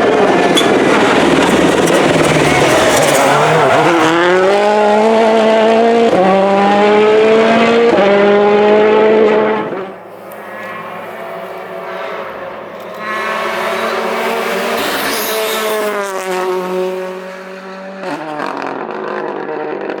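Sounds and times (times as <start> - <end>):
gear upshifts: 0.0 - 6.2, 9.5 - 17.7
rally car engine at full throttle: 0.0 - 20.0.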